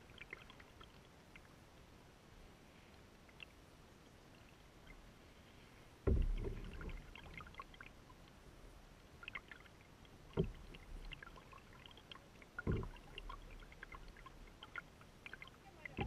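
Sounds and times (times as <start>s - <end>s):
small splashes and drips: 0.0s - 1.6s, 2.9s - 5.0s, 6.0s - 8.4s, 9.0s - 16.0s
water lapping against bow: 2.4s - 16.0s
water slapping against hull: 6.0s - 7.8s, 9.2s - 16.0s.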